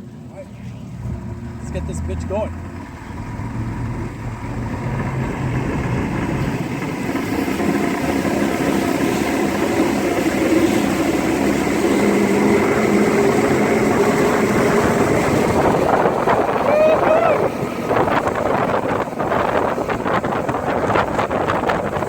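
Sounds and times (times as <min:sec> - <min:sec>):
outboard motor accelerating: 0:00.0 - 0:22.0.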